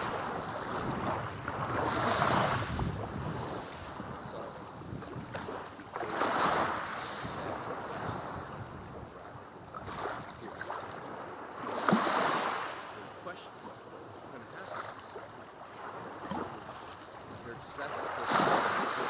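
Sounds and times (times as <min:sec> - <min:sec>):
wind on microphone: 0:00.0 - 0:12.7, 0:15.8 - 0:19.0
sea waves washing on beach: 0:00.0 - 0:19.0.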